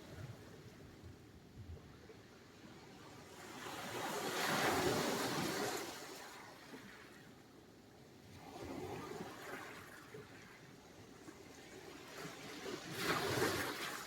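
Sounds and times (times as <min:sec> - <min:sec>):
sea waves breaking: 0:12.5 - 0:14.0.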